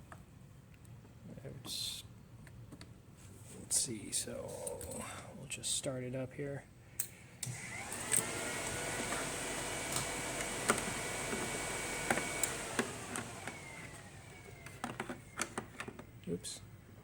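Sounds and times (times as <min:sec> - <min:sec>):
small electric motor whining: 0:07.4 - 0:15.7.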